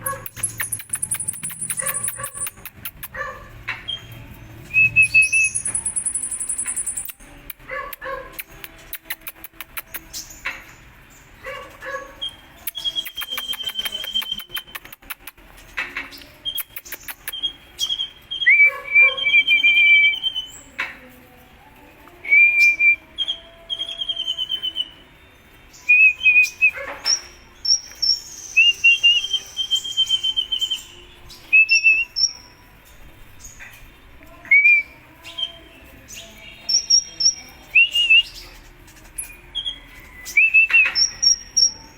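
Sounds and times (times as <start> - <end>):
bird ticking chatter: 0.0 - 3.2, 5.3 - 7.2, 12.7 - 15.4
bird singing whistled trills: 0.2 - 3.0, 3.9 - 7.3, 12.2 - 15.2, 16.2 - 20.7, 22.2 - 32.7, 34.3 - 41.9.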